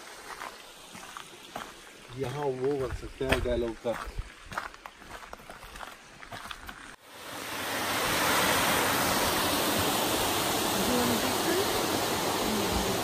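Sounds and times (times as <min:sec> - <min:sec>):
water rushing: 0:00.0 - 0:04.0, 0:07.0 - 0:13.0.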